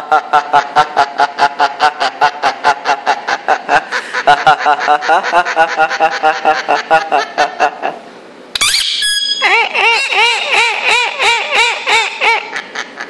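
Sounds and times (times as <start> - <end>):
parrot laughing: 0.0 - 13.0
parrot shrill screech: 8.6 - 12.4.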